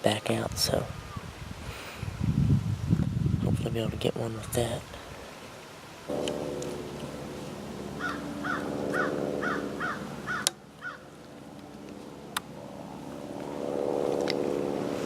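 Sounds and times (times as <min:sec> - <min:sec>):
low hum: 0:06.1 - 0:15.0
crow cawing: 0:08.0 - 0:11.1.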